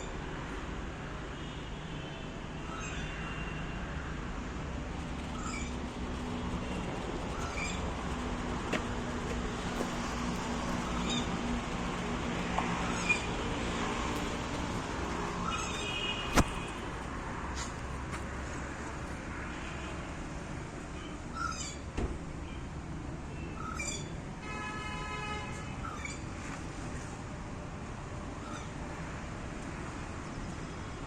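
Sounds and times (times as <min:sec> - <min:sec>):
sharp click: 0:16.3 - 0:16.7.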